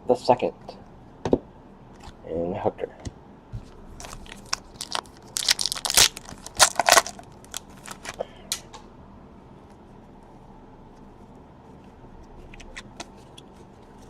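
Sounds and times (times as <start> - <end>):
wrapper tearing and crinkling: 4.0 - 8.2.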